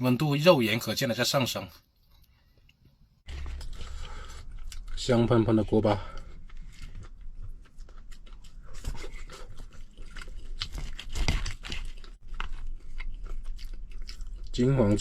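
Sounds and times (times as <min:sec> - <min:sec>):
crunchy rice crust being chewed: 0:06.2 - 0:15.0.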